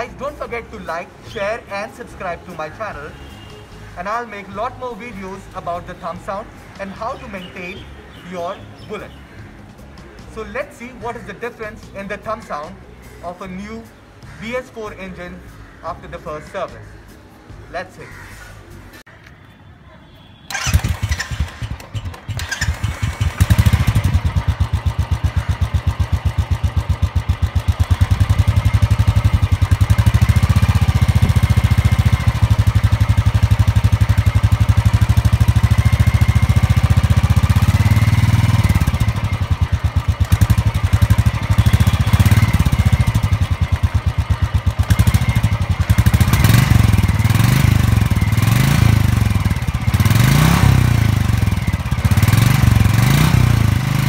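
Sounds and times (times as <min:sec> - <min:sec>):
motorcycle engine idling: 0:20.5 - 0:54.0
motorcycle engine revving: 0:20.5 - 0:54.0.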